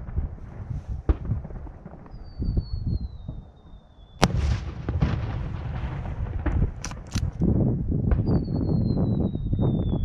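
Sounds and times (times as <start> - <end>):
firework launch bang: 0.0 - 3.4, 4.2 - 7.4
falling firework whistle: 2.1 - 4.6, 8.2 - 10.0
firework burst bang: 4.2 - 6.8
low rumbling: 4.2 - 10.0.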